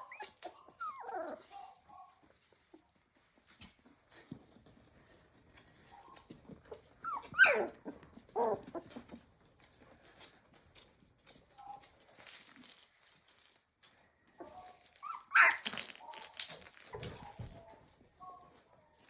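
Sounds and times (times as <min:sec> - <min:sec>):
puppies whimpering: 0:00.0 - 0:01.9, 0:06.0 - 0:09.2.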